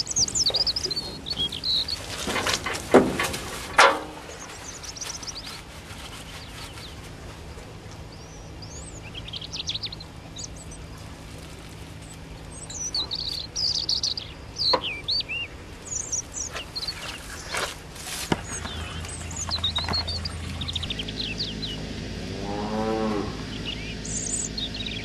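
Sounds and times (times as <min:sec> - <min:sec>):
faint low hum: 0:00.0 - 0:25.0
small birds chirping: 0:00.0 - 0:25.0.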